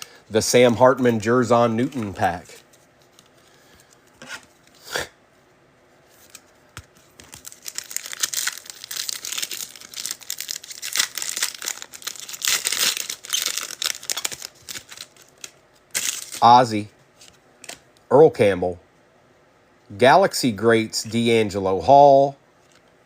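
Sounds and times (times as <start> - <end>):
wrapper tearing and crinkling: 7.2 - 16.5.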